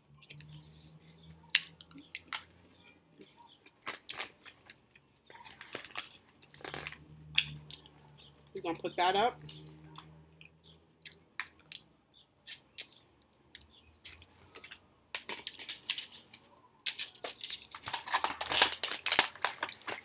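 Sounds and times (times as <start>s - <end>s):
crunching and rustling: 0.2s - 8.1s, 14.0s - 20.0s
person chewing: 0.2s - 8.3s, 9.4s - 20.0s
wet mouth clicks and smacks: 11.0s - 16.0s.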